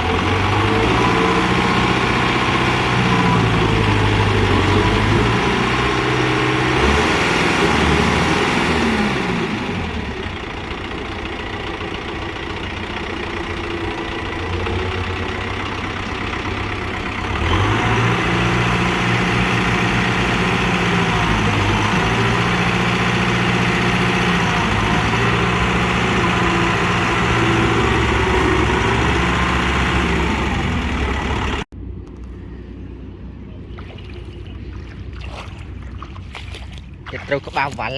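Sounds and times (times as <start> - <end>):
tractor diesel engine running: 0.0 - 37.9.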